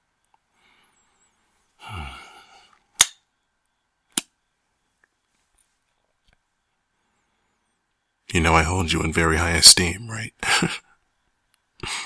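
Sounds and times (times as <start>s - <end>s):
man sighing softly: 1.8s - 2.7s.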